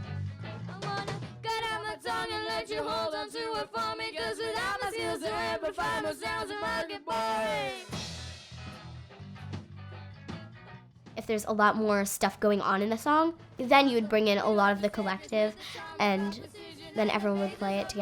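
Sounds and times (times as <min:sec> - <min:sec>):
bass and drums: 0:00.0 - 0:01.8, 0:06.7 - 0:15.2
person singing: 0:00.0 - 0:08.0, 0:13.7 - 0:18.0.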